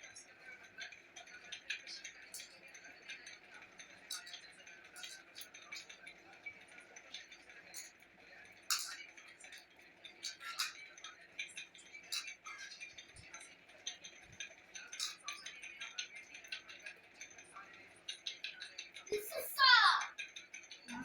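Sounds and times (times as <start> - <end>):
faint background hum: 0.0 - 21.0
clinks of food on plate: 8.6 - 17.4.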